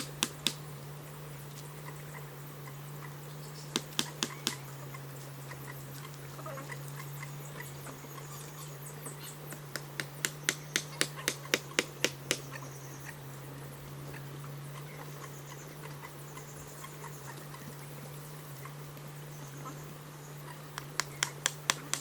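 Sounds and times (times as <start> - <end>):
hand tool knocking on wood: 0.0 - 0.6, 3.8 - 4.6, 9.6 - 12.4, 21.0 - 22.0
steady low hum: 0.0 - 22.0.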